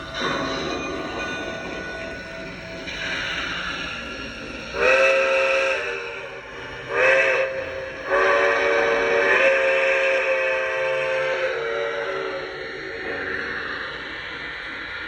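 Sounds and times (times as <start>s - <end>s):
steam whistle blasts: 4.7s - 14.0s.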